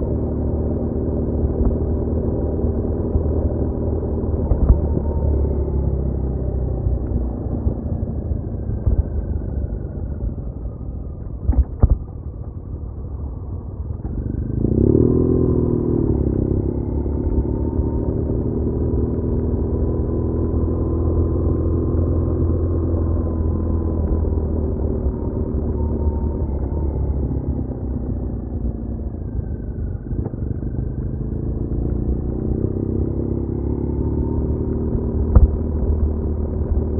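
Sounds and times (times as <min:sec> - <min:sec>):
motorcycle engine: 0:12.5 - 0:36.9.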